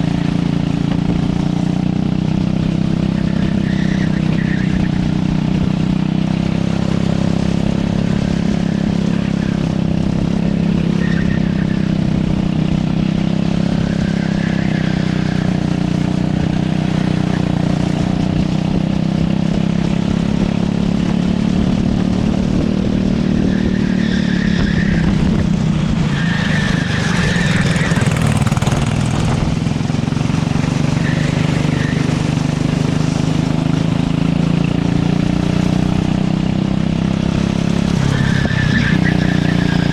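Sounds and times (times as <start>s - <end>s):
racing kart engine: 0.0s - 39.9s
tyre squeals: 26.0s - 29.4s, 38.0s - 39.9s.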